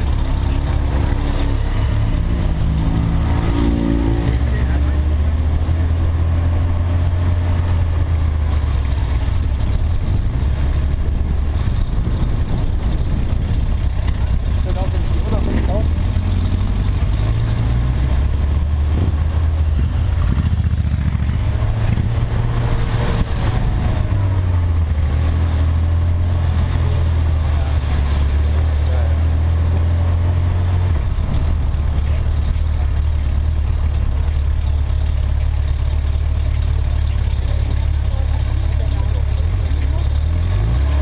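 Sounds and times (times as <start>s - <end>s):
motorcycle engine running low: 7.4s - 25.1s.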